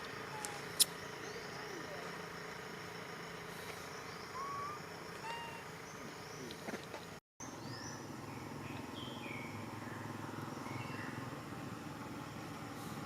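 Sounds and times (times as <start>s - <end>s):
whistled animal calls: 4.2s - 5.7s.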